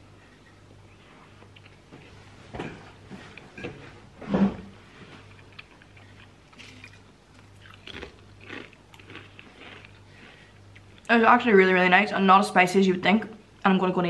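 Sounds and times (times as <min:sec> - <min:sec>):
crunchy sandwich chewing: 0:05.3 - 0:11.0.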